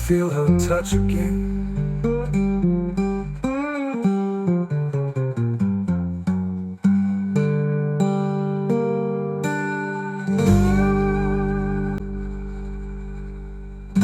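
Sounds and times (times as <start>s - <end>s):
plucked guitar notes: 0.0s - 14.0s
guitar chord ringing: 8.2s - 14.0s.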